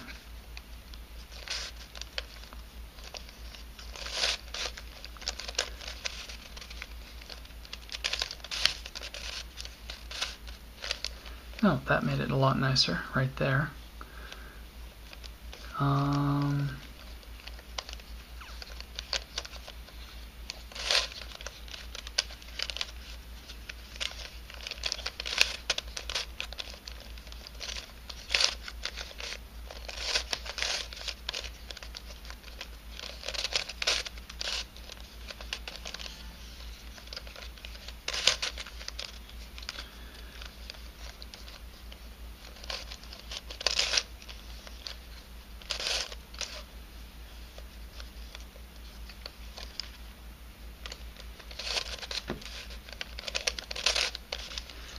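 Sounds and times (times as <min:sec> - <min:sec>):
faint low hum: 0:00.0 - 0:54.9
puzzle clicking and rattling: 0:42.4 - 0:46.6.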